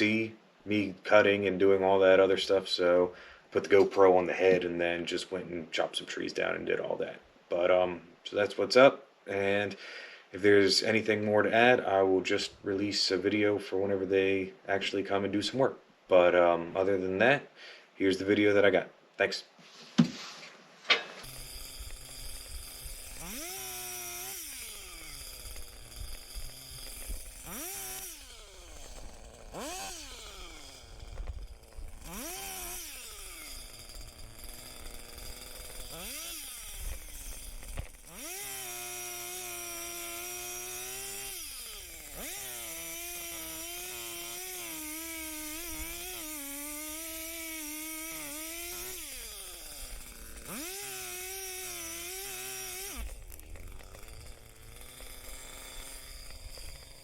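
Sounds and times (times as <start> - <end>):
chainsaw revving and cutting wood: 0.0 - 6.9, 21.2 - 57.0.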